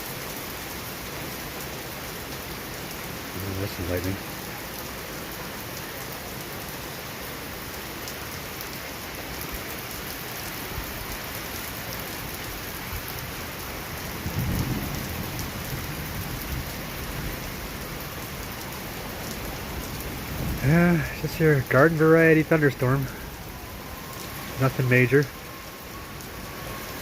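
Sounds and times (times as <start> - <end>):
heavy rain: 0.0 - 27.0
thunder rumbling: 14.0 - 18.0, 19.7 - 25.4.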